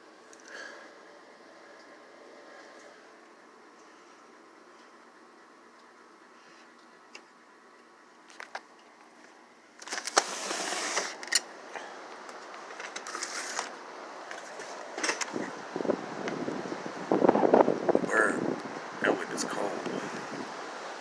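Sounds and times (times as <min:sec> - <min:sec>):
wind buffeting microphone: 0:15.3 - 0:20.6.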